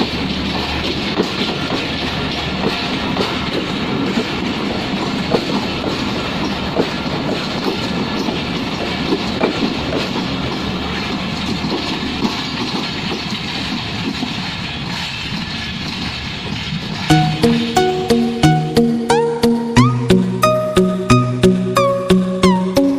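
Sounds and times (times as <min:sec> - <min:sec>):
wheel clicks over rail joints: 0:00.0 - 0:17.1
passenger train rumbling past: 0:00.0 - 0:22.9.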